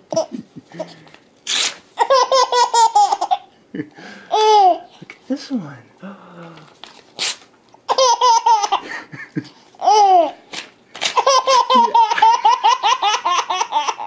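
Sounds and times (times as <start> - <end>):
baby laughing: 2.0 - 3.5, 4.3 - 4.9, 7.9 - 8.9, 9.8 - 10.4, 11.1 - 14.0.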